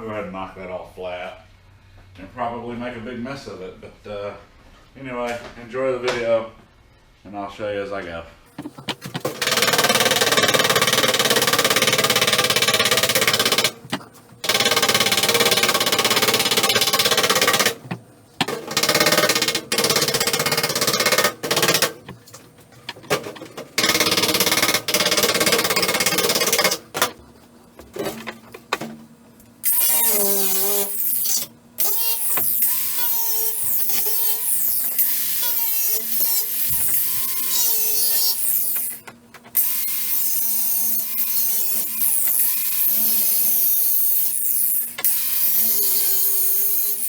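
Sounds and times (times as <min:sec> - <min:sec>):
angle grinder grinding steel: 0:29.6 - 0:39.0, 0:39.6 - 0:47.0.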